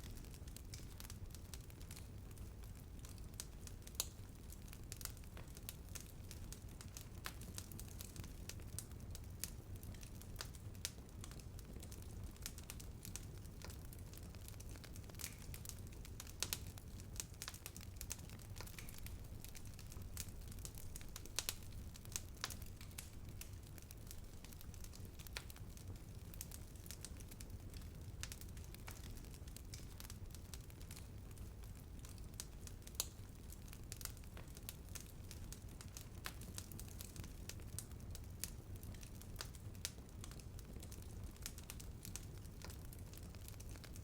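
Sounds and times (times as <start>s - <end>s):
wood fire crackling and popping: 0.0s - 44.0s.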